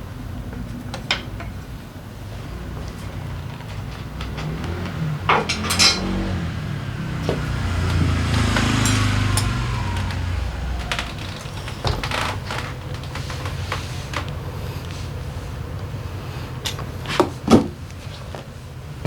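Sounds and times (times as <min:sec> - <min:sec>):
loud metal clanks: 0:04.2 - 0:12.8
metal tools clinking and knocking: 0:05.3 - 0:06.3, 0:07.9 - 0:10.1.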